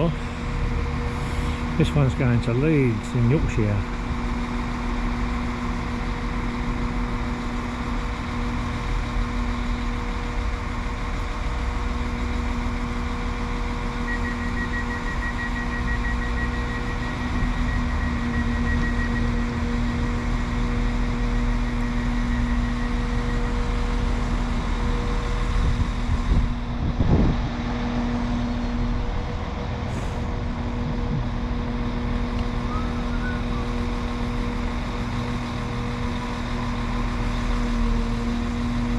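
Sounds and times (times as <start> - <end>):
diesel train engine idling: 0.0 - 38.9
rapid electronic beeping: 14.0 - 20.1.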